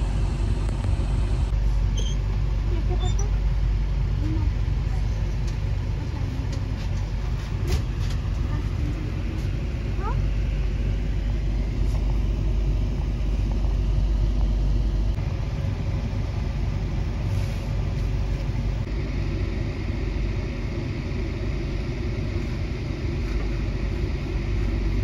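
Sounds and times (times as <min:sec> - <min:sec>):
train rumbling slowly: 0:00.0 - 0:25.0.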